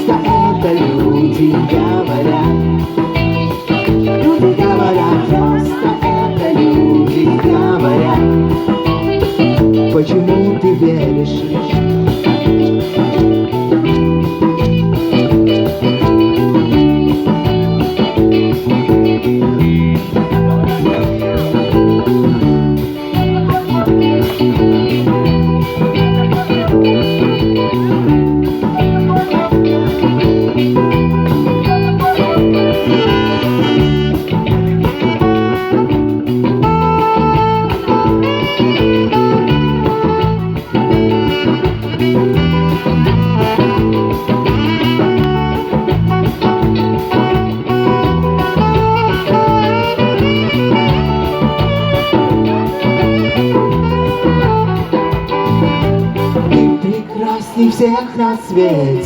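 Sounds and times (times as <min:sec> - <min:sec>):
live reggae band playing: 0:00.0 - 0:59.0.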